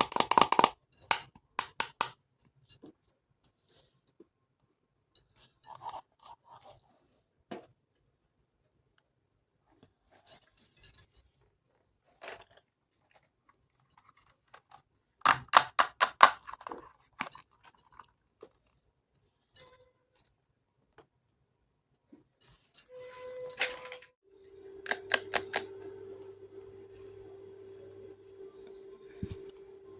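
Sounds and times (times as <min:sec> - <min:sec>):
toy kitchen pieces clicking: 0:00.0 - 0:02.2, 0:15.3 - 0:17.7, 0:24.8 - 0:25.8
steady hum: 0:24.3 - 0:29.9.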